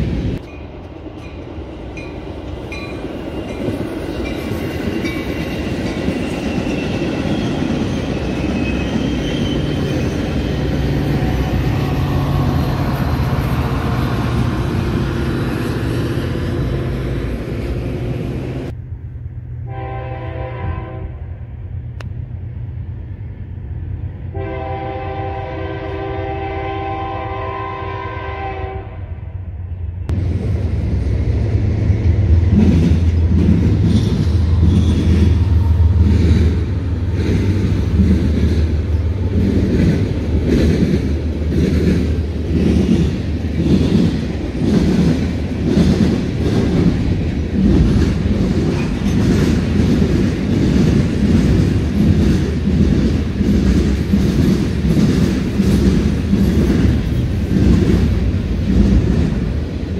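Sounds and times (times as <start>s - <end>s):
commuter train passing: 0.0s - 59.9s
locomotive air horn blasts: 19.6s - 21.4s, 24.3s - 29.2s.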